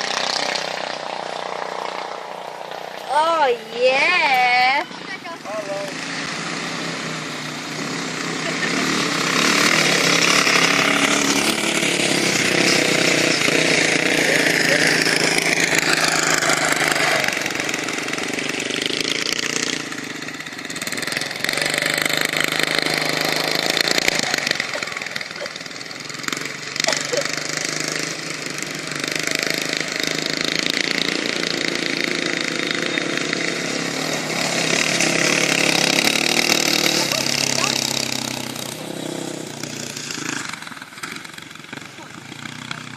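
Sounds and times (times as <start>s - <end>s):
buggy engine revving: 0.0s - 42.9s.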